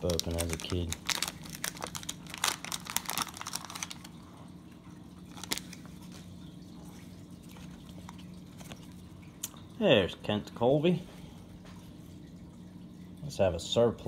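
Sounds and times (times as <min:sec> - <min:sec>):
card handling: 0:00.0 - 0:04.2, 0:05.3 - 0:06.3
wrapper crinkling and tearing: 0:00.0 - 0:04.2, 0:05.3 - 0:06.3
steady low hum: 0:00.0 - 0:14.0.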